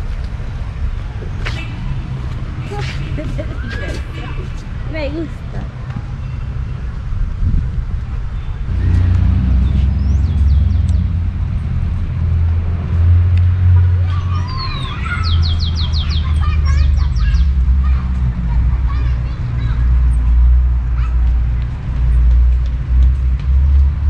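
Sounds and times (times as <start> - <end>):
steady low rumble: 0.0 - 24.0
small birds chirping: 8.3 - 11.2, 14.1 - 17.7.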